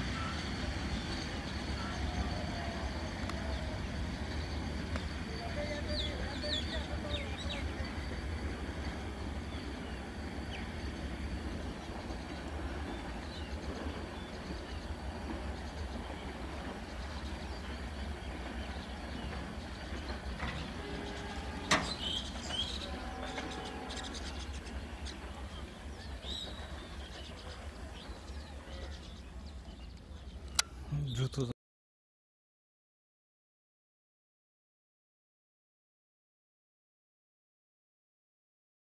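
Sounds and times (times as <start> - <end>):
train rumbling along track: 0.0 - 30.9.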